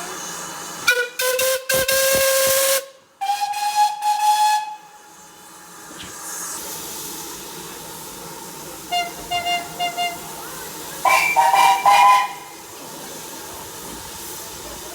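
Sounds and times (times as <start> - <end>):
steam hiss: 0.0 - 14.9
steam locomotive whistle: 0.8 - 5.1, 8.9 - 12.6.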